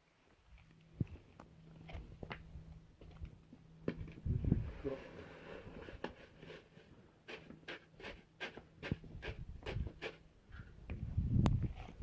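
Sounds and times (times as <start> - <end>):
faint steady hum: 0.0 - 12.0
hand tool scraping concrete: 4.7 - 10.3.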